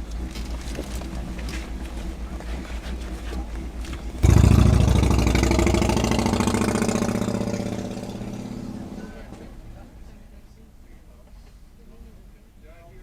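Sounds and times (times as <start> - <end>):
low rumble of idling traffic: 0.0 - 13.0
car engine running close by: 3.5 - 10.1.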